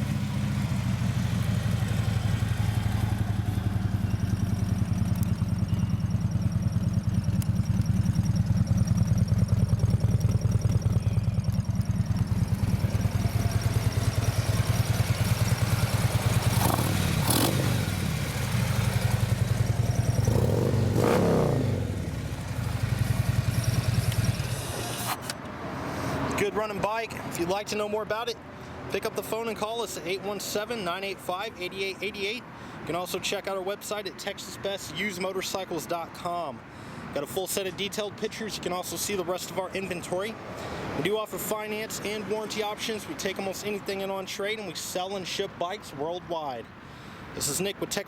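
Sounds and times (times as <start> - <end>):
motorcycle engine idling: 0.0 - 24.6
engine revving: 12.9 - 25.2.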